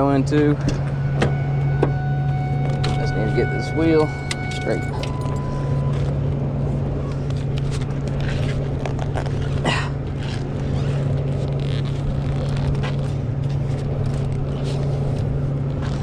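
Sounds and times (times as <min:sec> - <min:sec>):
diesel truck engine idling: 0:00.0 - 0:08.2.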